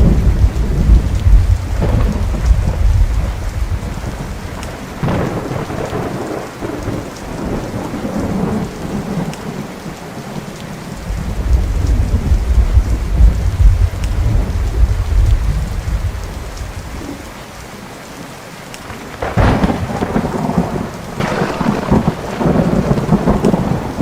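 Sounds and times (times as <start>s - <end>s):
thunder crack: 0.0s - 9.3s, 11.0s - 17.1s, 19.2s - 24.0s
deep thunder rumble: 0.0s - 9.7s, 11.0s - 17.3s, 19.2s - 24.0s
steady rain: 0.0s - 24.0s.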